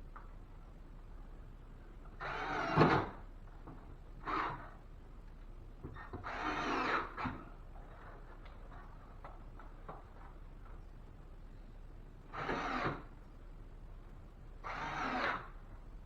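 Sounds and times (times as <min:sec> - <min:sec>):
cordless drill driving screws: 0:12.4 - 0:13.0, 0:14.7 - 0:15.5.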